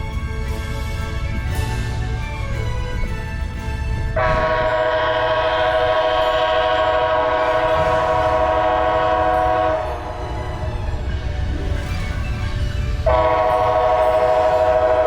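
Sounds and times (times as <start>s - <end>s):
train rumble: 0.0s - 15.0s
train horn blast: 4.1s - 10.3s, 13.0s - 15.0s.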